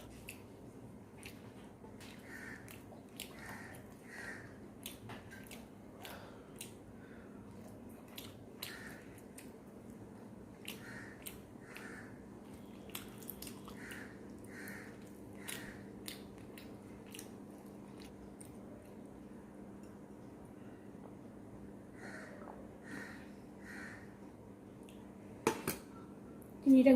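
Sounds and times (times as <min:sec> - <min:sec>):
faint steady hum: 0:00.0 - 0:26.9
chewing with wet mouth clicks: 0:00.1 - 0:00.5, 0:01.1 - 0:04.0, 0:04.8 - 0:06.8, 0:07.5 - 0:11.9, 0:12.5 - 0:19.0, 0:24.8 - 0:25.1.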